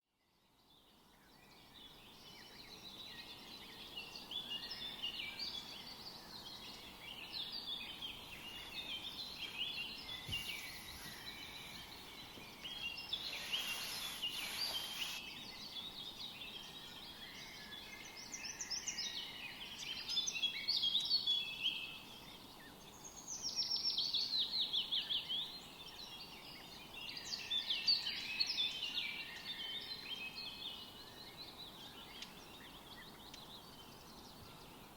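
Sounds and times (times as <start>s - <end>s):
songbirds chirping and trilling: 0.1s - 34.9s.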